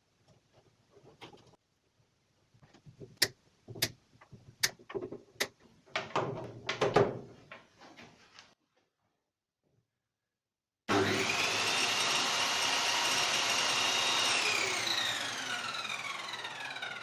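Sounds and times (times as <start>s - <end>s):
knocks and rattles: 2.6s - 8.2s.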